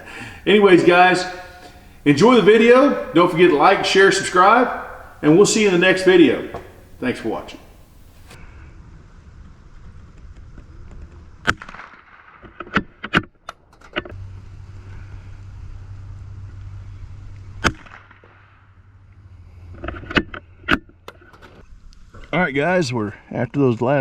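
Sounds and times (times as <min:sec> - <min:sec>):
low steady hum: 0:00.0 - 0:08.4, 0:14.2 - 0:17.7.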